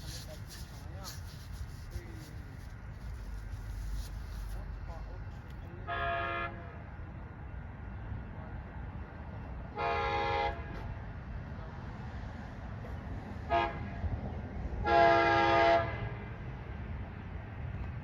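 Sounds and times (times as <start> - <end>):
low steady rumble: 0.0 - 6.7
train horn blasts: 5.8 - 6.8, 9.7 - 10.9, 13.4 - 14.0, 14.8 - 16.4.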